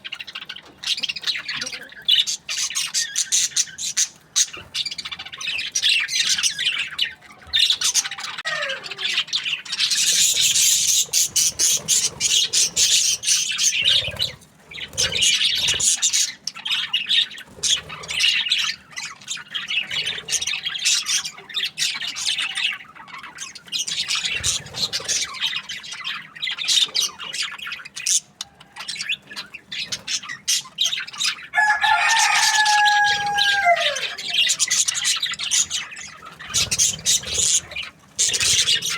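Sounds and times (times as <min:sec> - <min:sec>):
budgerigars chirping: 0:00.0 - 0:38.9
drawn-out bird call: 0:31.6 - 0:38.9.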